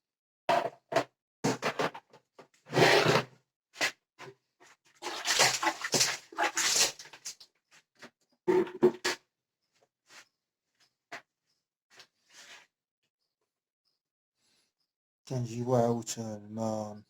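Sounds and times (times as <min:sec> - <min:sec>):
hand scrubbing and scraping: 0:05.0 - 0:07.3.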